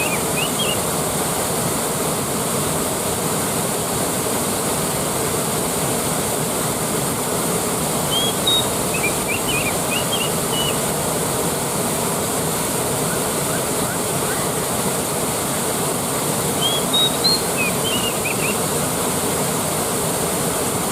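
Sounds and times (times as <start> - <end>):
short high chirps: 0.0 - 0.8, 8.1 - 10.8, 16.6 - 18.6
waterfall rushing: 0.0 - 20.9.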